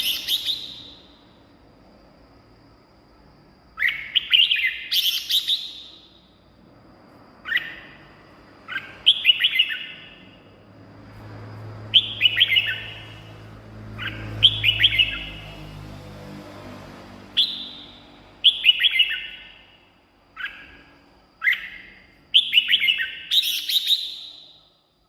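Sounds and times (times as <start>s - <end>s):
bird chirping song: 0.0s - 1.4s, 3.7s - 6.5s, 7.4s - 10.6s, 11.6s - 16.1s, 17.3s - 25.0s.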